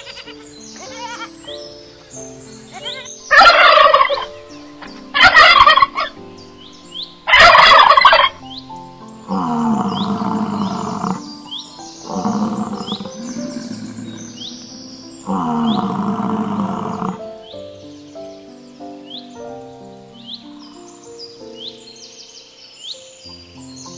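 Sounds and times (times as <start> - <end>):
low animal call: 0.0 - 1.6, 2.4 - 6.2, 7.2 - 8.4, 9.2 - 11.4, 12.0 - 17.4
soft background music: 0.0 - 23.9
turkey gobbling: 2.8 - 6.2, 7.3 - 8.4.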